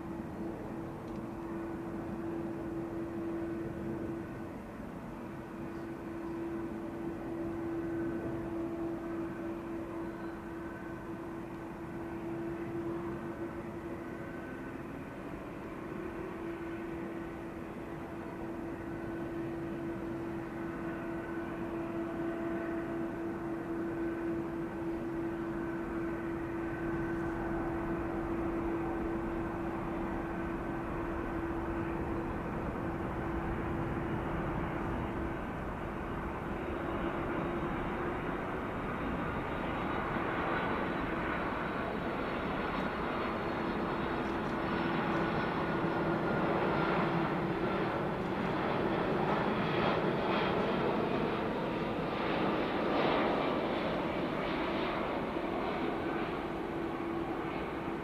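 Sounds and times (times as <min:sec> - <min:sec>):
jet engines running: 0:00.0 - 0:58.0.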